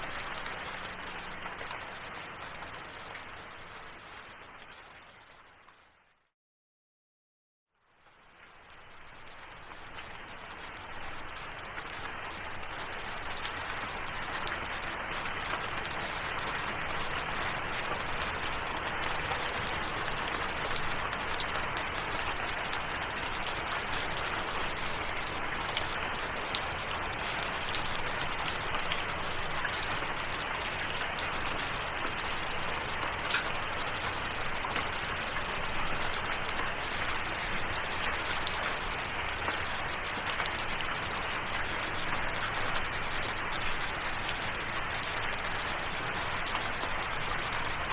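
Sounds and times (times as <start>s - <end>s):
steady rain falling: 0.0s - 6.1s, 7.8s - 47.9s.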